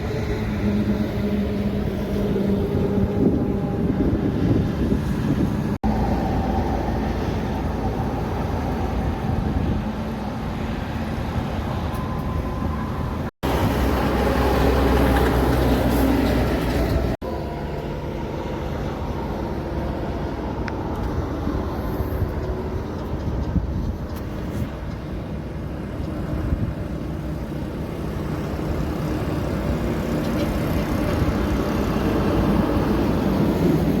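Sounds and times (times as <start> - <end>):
truck traffic rumbling: 0.0 - 34.0.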